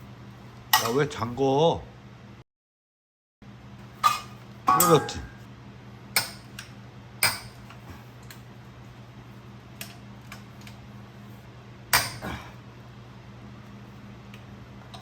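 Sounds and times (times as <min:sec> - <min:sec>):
steady low hum: 0:00.0 - 0:02.4, 0:03.4 - 0:15.0.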